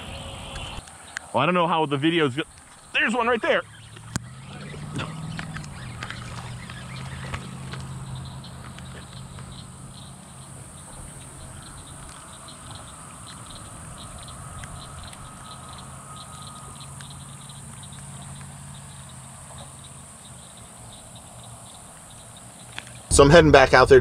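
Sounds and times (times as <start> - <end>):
steady high hiss: 0.0 - 5.9, 6.6 - 24.0
rain pattering on a pond: 3.4 - 20.8.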